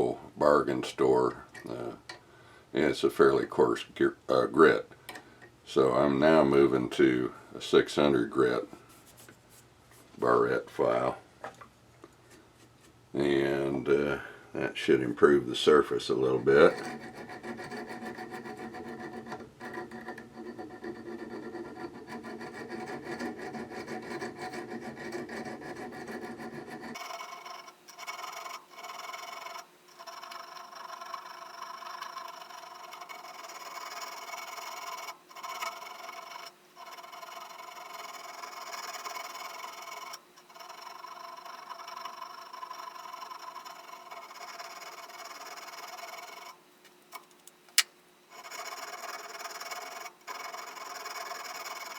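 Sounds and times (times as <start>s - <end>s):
file rasping on steel: 16.2s - 46.6s, 48.3s - 51.9s.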